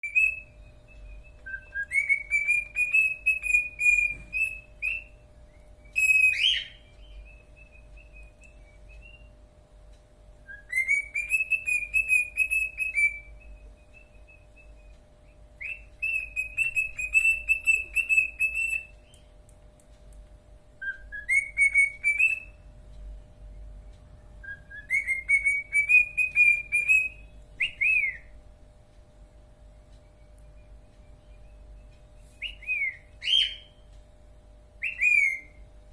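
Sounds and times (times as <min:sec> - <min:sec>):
cockatiel whistling: 0:00.0 - 0:09.4, 0:10.4 - 0:19.2, 0:20.8 - 0:22.6, 0:24.4 - 0:28.4, 0:30.3 - 0:33.8, 0:34.8 - 0:35.6.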